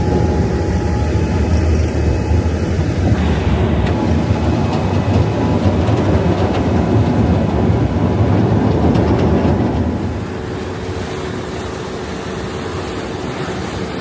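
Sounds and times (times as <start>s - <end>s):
boat engines rumbling: 0.0s - 14.0s
water rushing past hull: 0.0s - 14.0s.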